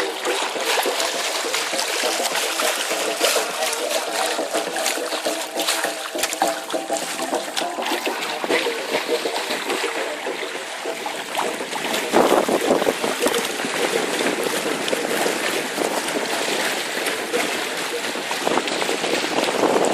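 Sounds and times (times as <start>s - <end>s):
water rushing along boat hull: 0.0s - 19.9s.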